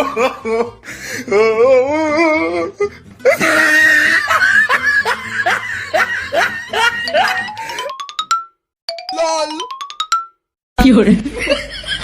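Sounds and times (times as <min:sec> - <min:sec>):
person laughing loudly: 0:00.0 - 0:00.8, 0:03.2 - 0:07.9.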